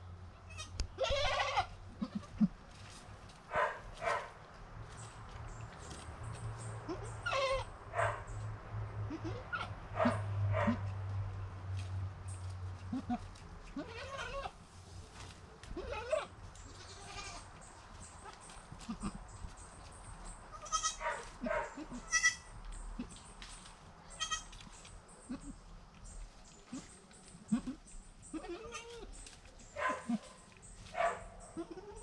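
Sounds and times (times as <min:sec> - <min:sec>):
goats bleating: 0:00.5 - 0:02.6, 0:12.9 - 0:14.6, 0:15.8 - 0:17.5, 0:18.2 - 0:19.2, 0:20.5 - 0:21.0, 0:21.8 - 0:22.5, 0:24.1 - 0:24.6, 0:26.7 - 0:29.1, 0:31.6 - 0:32.0.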